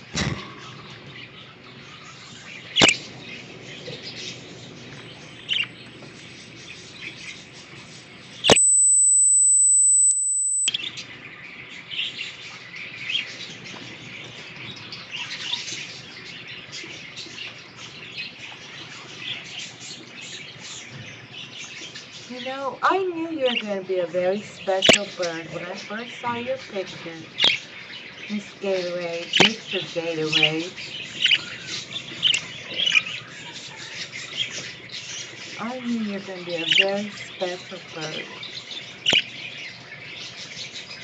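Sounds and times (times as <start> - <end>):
budgies chirping: 0.0 - 41.0
sharp click: 2.8 - 3.0
high-pitched tone: 8.5 - 10.7.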